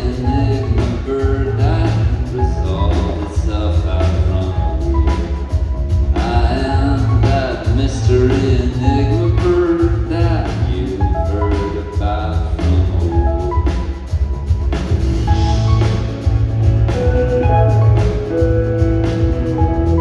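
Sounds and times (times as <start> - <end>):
person singing: 0.0 - 5.5, 6.1 - 13.8
drums: 0.0 - 20.0
heavy booming bass: 0.0 - 20.0
rock band playing live: 0.0 - 20.0.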